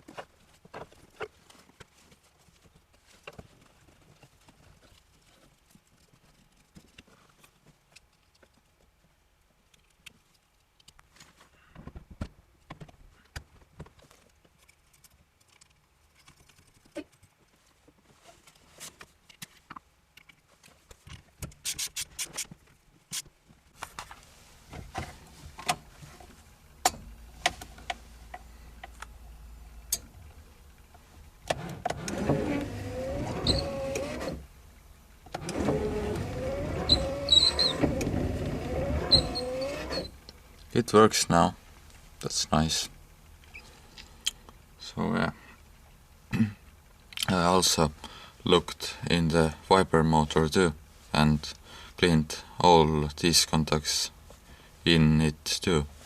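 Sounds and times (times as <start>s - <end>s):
steady low hum: 23.5s - 56.0s.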